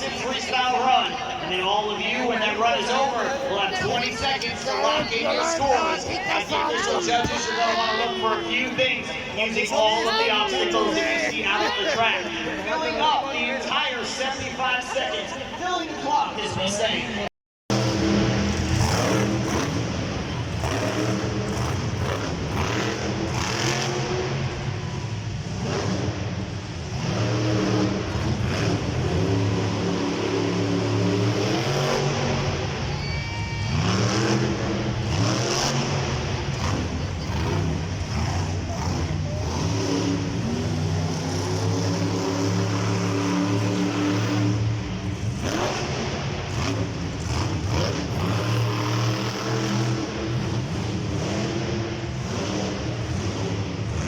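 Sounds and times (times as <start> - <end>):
truck engine revving hard: 17.7 - 32.9, 33.5 - 54.0.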